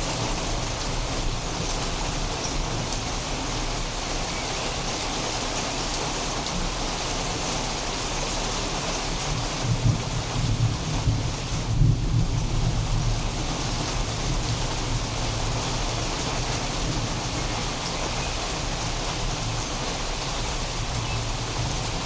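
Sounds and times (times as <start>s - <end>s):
steady rain hissing: 0.0s - 22.0s
distant thunder rumble: 9.6s - 19.6s.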